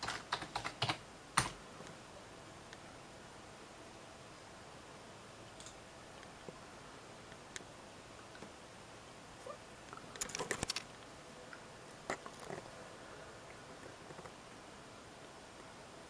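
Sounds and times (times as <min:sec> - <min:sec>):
computer keyboard keystrokes: 0:00.0 - 0:01.6.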